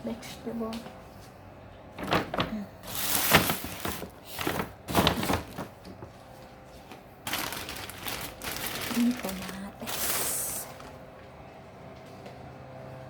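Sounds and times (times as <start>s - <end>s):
vegetables rustling and crinkling: 1.9s - 11.2s.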